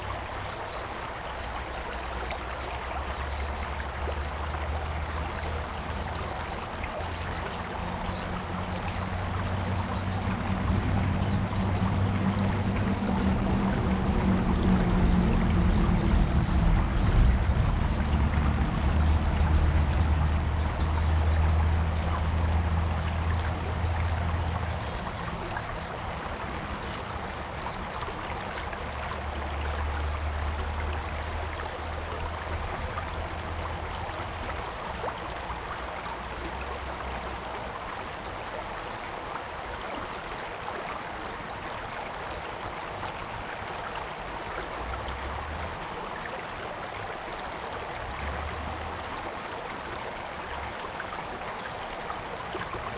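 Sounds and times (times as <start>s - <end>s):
stream flowing over rocks: 0.0s - 52.9s
low rumble: 7.8s - 25.5s.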